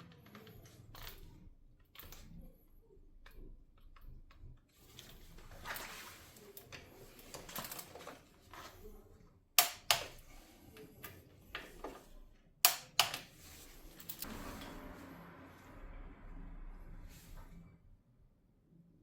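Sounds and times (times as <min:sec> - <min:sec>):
tools clicking and knocking: 0:09.6 - 0:12.0, 0:12.6 - 0:14.3.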